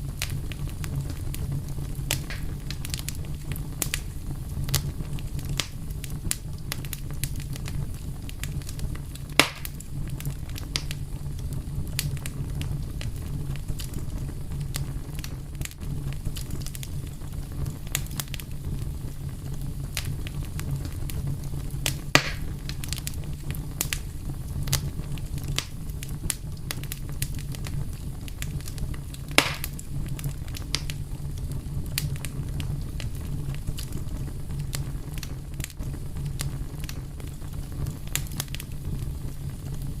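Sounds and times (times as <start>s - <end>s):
fire crackling: 0.0s - 40.0s
loud fire pops: 0.0s - 40.0s.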